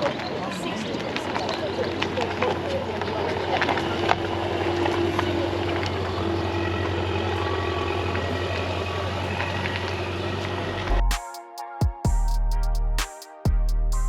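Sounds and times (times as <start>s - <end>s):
vehicle engine humming: 1.8s - 11.2s.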